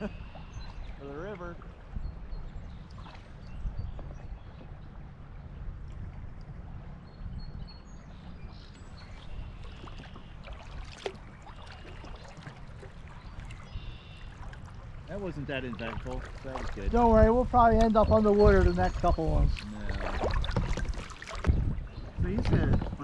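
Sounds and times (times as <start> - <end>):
water rushing: 0.0 - 1.9, 8.8 - 23.0
paddle splashes and knocks: 2.8 - 5.0, 8.2 - 23.0.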